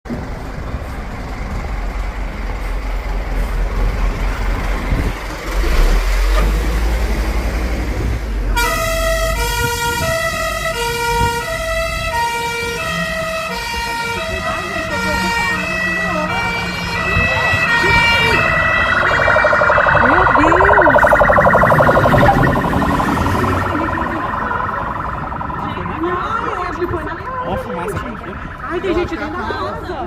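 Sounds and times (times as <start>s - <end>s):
emergency vehicle siren: 8.6s - 30.0s
low rumble: 18.1s - 29.5s.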